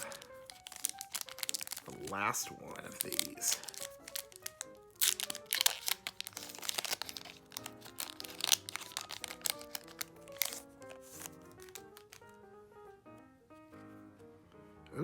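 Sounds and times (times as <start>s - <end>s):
foil wrapper crinkling and tearing: 0.0s - 12.4s
background music: 0.0s - 15.0s.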